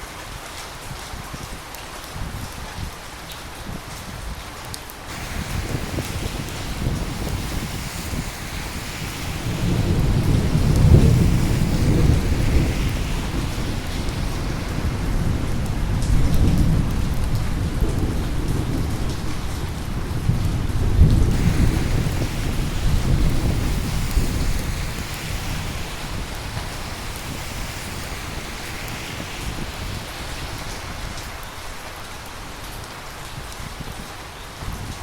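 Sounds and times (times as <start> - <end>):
steady rain: 0.0 - 35.0
rolling thunder: 5.1 - 32.7.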